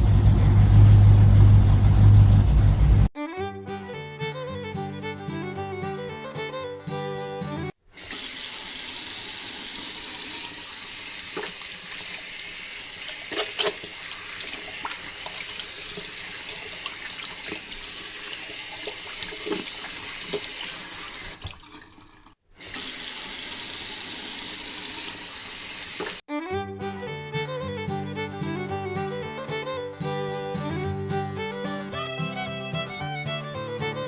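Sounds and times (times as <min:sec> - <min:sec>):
water pouring into water: 0:07.9 - 0:26.2.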